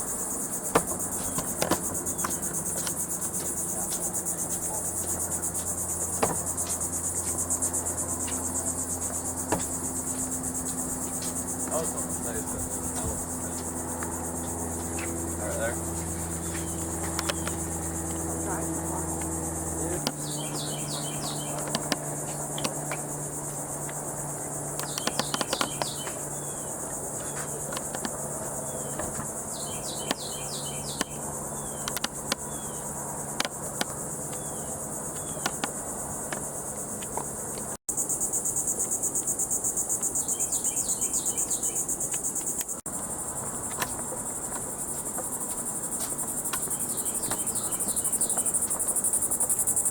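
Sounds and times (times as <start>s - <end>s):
insects buzzing: 0.0s - 49.9s
bird chirping: 16.4s - 17.8s, 19.8s - 22.8s, 24.8s - 28.0s, 28.6s - 32.9s, 40.2s - 42.0s, 46.5s - 48.8s.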